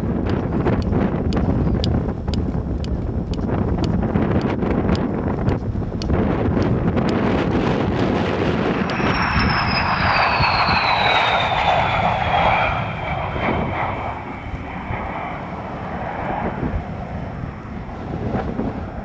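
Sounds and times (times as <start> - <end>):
airplane flying past low: 4.0 - 19.0
high whine falling in pitch: 7.8 - 19.0.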